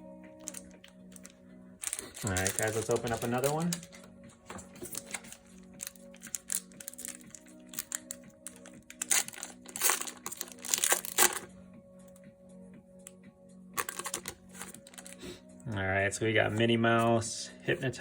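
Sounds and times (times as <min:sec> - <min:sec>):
soft background music: 0:00.0 - 0:18.0
foil wrapper crinkling and tearing: 0:00.4 - 0:04.1, 0:04.8 - 0:11.5, 0:13.8 - 0:15.2.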